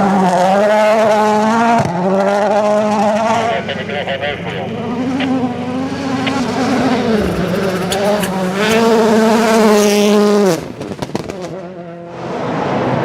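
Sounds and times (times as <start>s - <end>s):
rally car engine at full throttle: 0.0s - 13.0s
exhaust pops: 4.4s - 11.7s.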